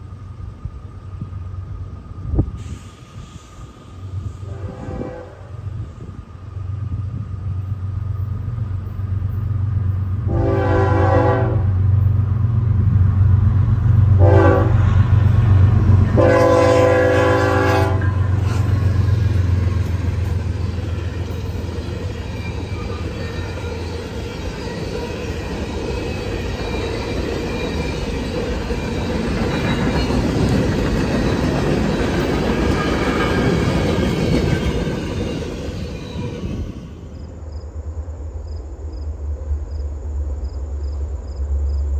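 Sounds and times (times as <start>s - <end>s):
train horn blasts: 4.4s - 5.7s, 10.2s - 12.0s, 14.1s - 15.4s, 16.0s - 21.3s
train cars clattering past: 7.6s - 37.4s.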